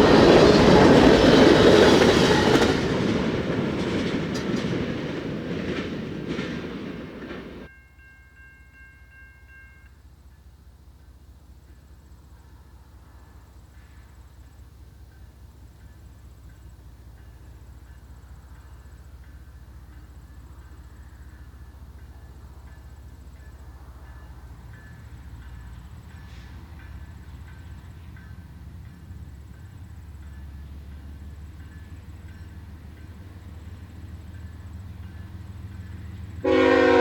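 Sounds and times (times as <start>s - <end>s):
locomotive engine rumble: 0.0s - 7.7s.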